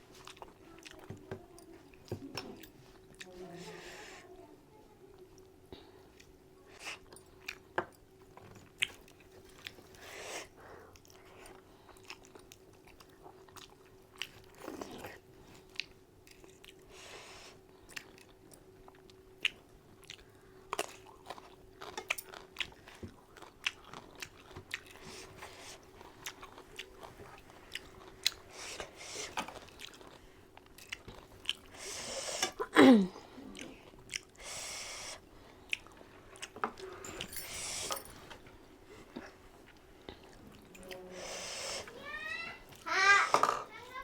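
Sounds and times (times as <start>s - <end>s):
person chewing crunchy food: 8.3s - 16.9s, 17.6s - 38.2s.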